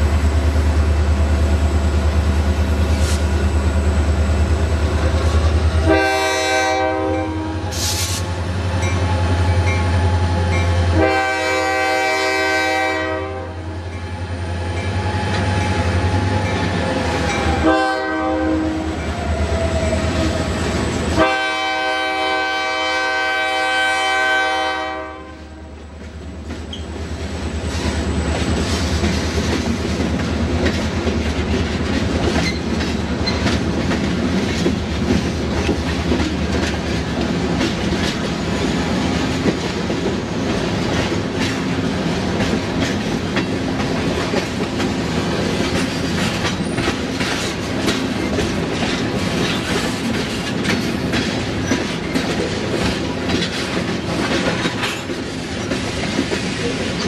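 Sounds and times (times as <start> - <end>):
diesel locomotive engine rumble: 0.0 - 57.0
train horn blasts: 5.8 - 8.0, 10.8 - 13.8, 17.6 - 19.1, 21.2 - 25.8
wheels clacking over rail joints: 26.0 - 57.0.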